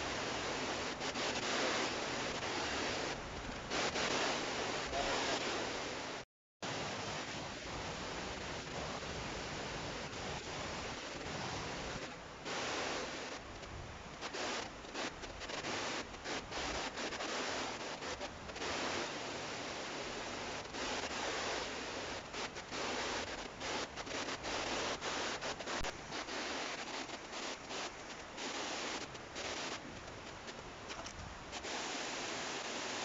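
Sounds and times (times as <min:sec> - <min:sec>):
rustling noise: 0:20.5 - 0:33.0.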